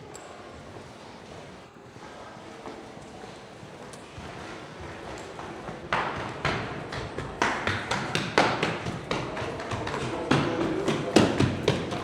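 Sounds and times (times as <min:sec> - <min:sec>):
footsteps on hard paving: 0:04.8 - 0:12.0.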